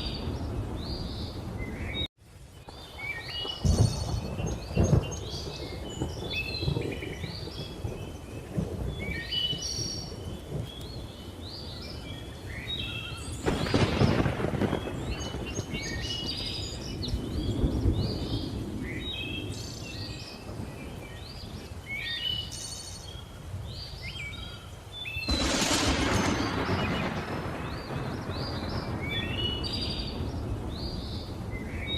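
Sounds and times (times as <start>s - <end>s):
thunder rumbling: 0.0s - 21.7s, 25.2s - 31.9s
loud thunderclap: 2.7s - 10.8s, 13.4s - 19.1s, 25.3s - 31.9s.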